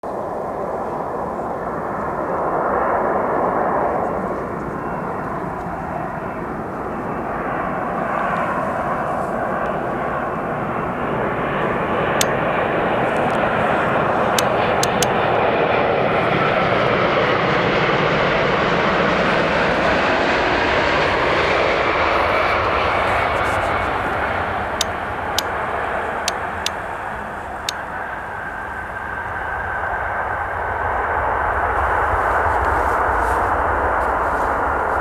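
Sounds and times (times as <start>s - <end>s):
jet engines roaring: 6.5s - 32.6s
sharp clicks: 12.2s - 15.4s.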